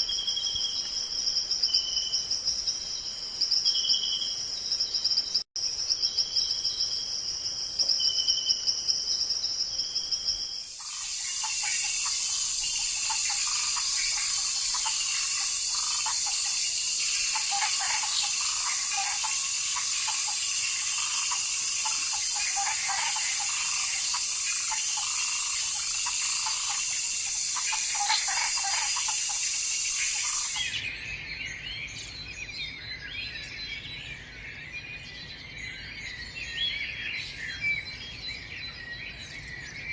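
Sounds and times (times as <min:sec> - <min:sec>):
high insect trill with pulsing calls: 0:00.0 - 0:30.9
dense high insect hiss: 0:05.6 - 0:30.9
birds chirping: 0:10.6 - 0:30.9.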